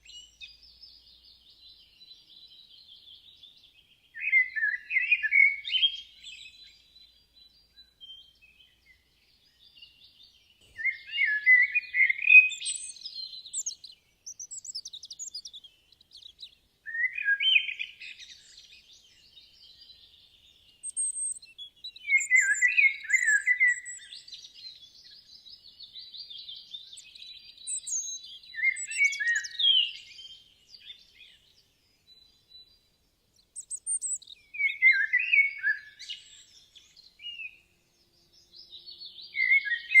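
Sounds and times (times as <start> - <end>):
faint bird twittering: 0.0 - 40.0
bird repeating loud song phrase: 22.0 - 24.2.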